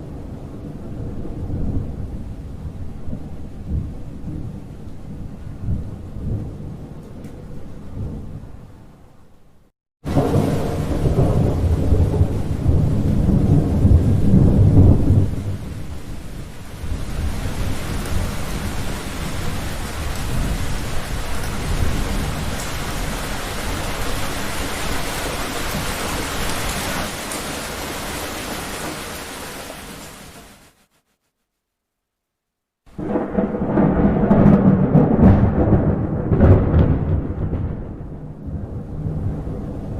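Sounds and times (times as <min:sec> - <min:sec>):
thunder rumbling: 0:00.0 - 0:09.0, 0:10.0 - 0:30.1, 0:32.9 - 0:39.9
heavy rain: 0:10.0 - 0:30.9, 0:32.9 - 0:39.9.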